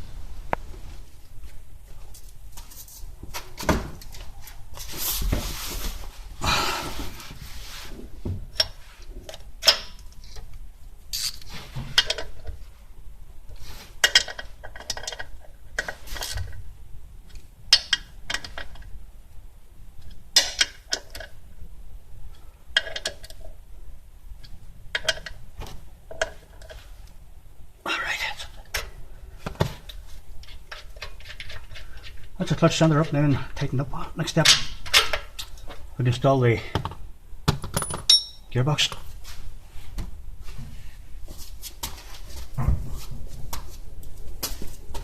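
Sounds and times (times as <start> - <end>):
metallic clinks of hand tools: 37.8 - 38.5.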